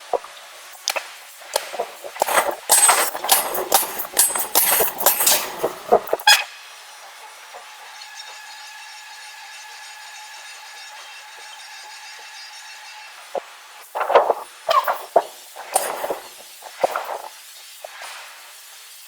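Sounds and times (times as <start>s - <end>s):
heavy metal clanking and scraping: 1.6s - 6.3s.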